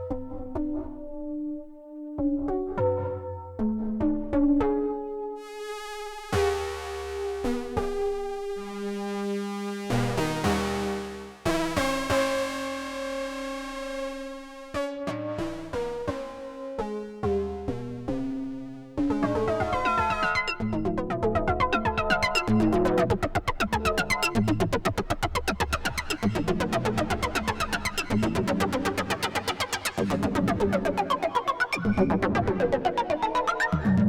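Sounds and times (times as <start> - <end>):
sequenced plucked synth notes: 9.8 - 34.0
synth bass line: 17.3 - 34.0
synthesizer held notes: 19.0 - 34.0.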